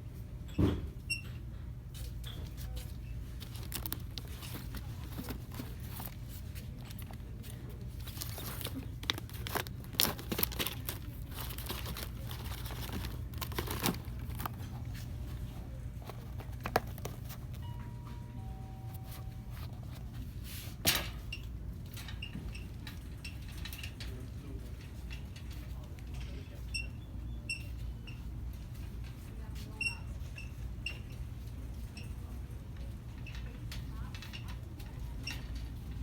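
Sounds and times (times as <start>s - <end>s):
steady low hum: 1.5s - 22.2s
packaging crinkling and rustling: 2.6s - 17.6s
faint short tone: 17.6s - 19.7s.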